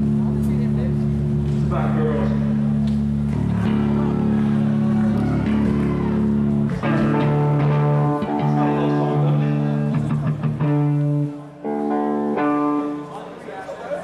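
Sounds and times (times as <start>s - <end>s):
electric guitar chords ringing: 0.0s - 13.4s
live band playing: 5.6s - 13.2s.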